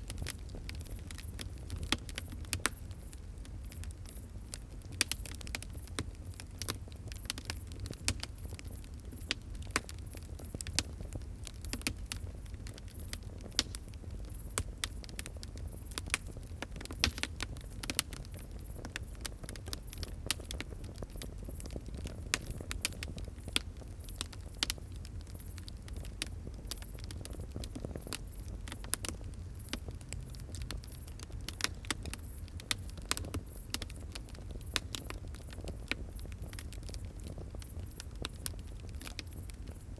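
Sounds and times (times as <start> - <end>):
fire crackles and pops: 0.0 - 39.9
wood fire rumble: 0.0 - 39.9.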